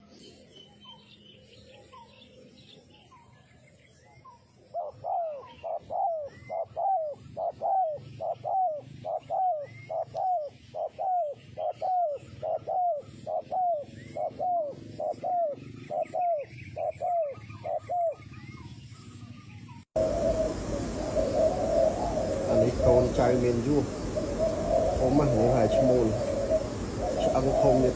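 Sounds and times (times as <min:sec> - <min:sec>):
small birds chirping: 0:00.0 - 0:27.9
dove cooing: 0:04.6 - 0:18.8, 0:20.0 - 0:27.9.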